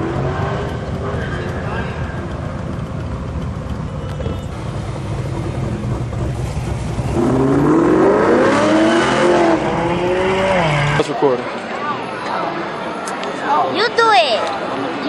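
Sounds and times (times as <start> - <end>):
car engine accelerating: 0.0 - 11.3.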